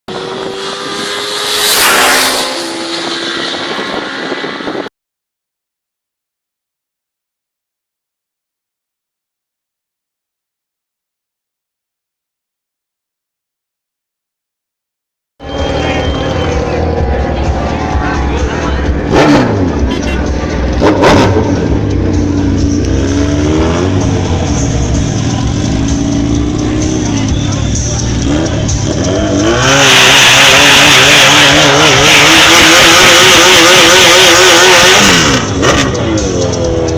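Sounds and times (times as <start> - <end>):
motorcycle engine revving high: 0.1 - 4.9, 15.4 - 36.9.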